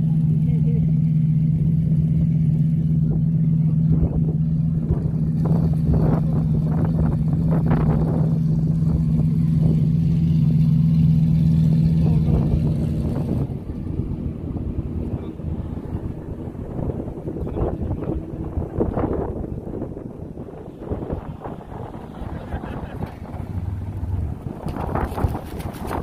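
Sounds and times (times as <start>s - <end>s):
car engine droning: 0.0s - 26.0s.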